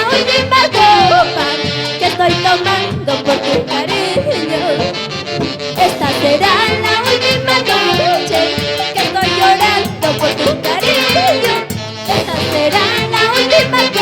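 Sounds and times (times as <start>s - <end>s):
band music with wavering melody: 0.0s - 14.0s
steady percussive beat: 5.8s - 14.0s.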